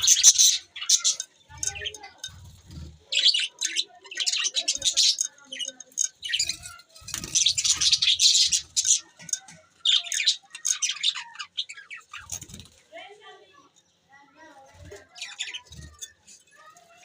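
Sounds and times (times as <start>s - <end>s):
budgerigars chirping: 0.0s - 12.6s.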